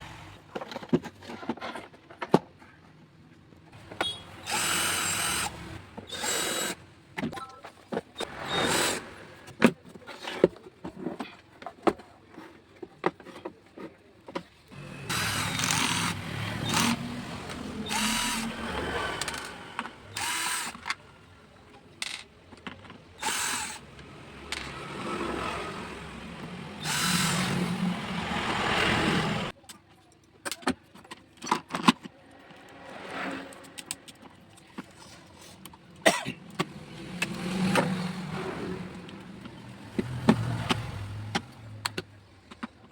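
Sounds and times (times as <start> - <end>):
power drill: 3.9 - 6.8, 8.2 - 9.2, 14.8 - 21.0, 23.2 - 29.5
tools clicking and knocking: 14.3 - 21.0, 22.0 - 24.9.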